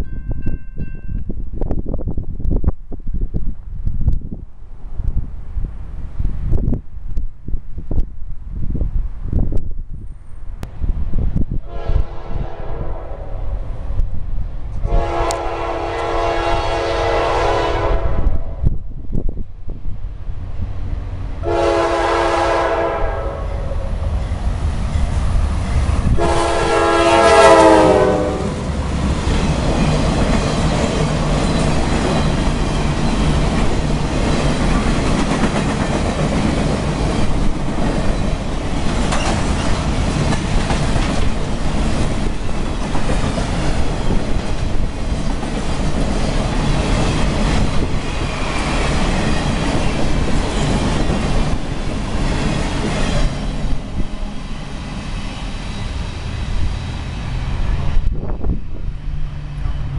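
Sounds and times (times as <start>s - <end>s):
freight train horn: 11.6s - 13.7s, 14.8s - 18.8s, 21.4s - 24.0s, 26.0s - 28.8s
train wheels clacking over rails: 28.6s - 56.8s.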